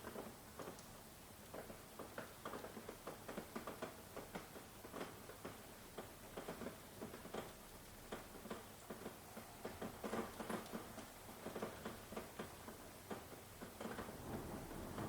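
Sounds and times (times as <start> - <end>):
raindrops tapping on hard surface: 0.0 - 15.0
faint hiss: 7.9 - 15.0.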